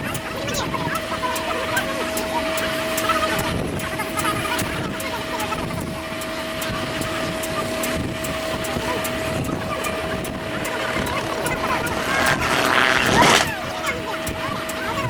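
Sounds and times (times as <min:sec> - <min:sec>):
engine running: 0:00.0 - 0:14.8
faint regular ticks: 0:07.8 - 0:13.5
steady whine: 0:08.7 - 0:13.5.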